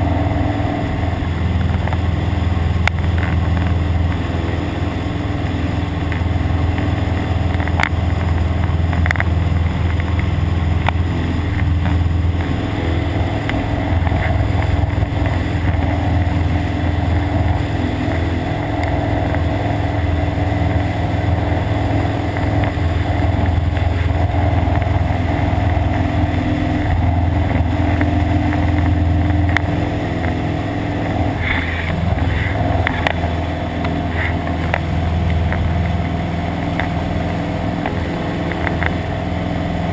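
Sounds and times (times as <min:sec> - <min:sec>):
plane engine and propeller droning: 0:00.0 - 0:39.9.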